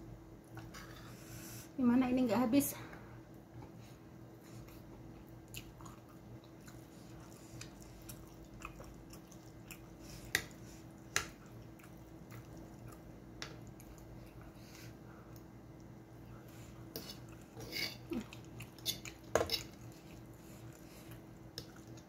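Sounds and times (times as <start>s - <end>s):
person chewing: 4.6s - 14.6s, 16.6s - 22.0s.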